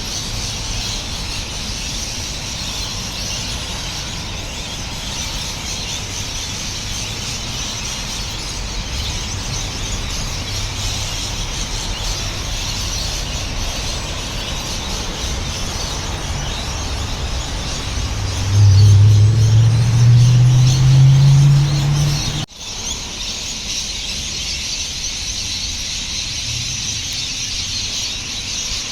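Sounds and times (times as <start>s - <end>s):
chorus of birds calling: 0.0s - 28.9s
low rumble: 16.2s - 22.5s.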